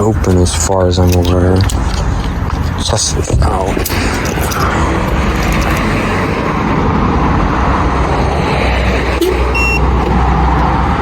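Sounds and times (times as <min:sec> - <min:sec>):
car engine running: 0:00.0 - 0:11.0
short high beep: 0:09.2 - 0:10.1.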